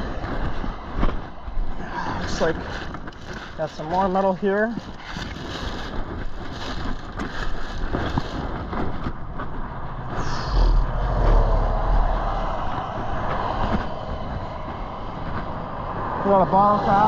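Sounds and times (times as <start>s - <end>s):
scattered clicks and rustling: 0.1s - 9.9s
road vehicle passing: 8.9s - 17.0s.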